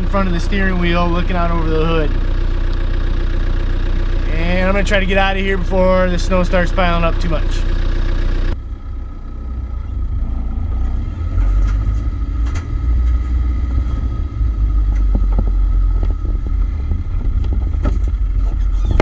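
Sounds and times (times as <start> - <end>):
engine and drivetrain rumble: 0.0 - 19.0
knocks and rattles: 11.3 - 19.0.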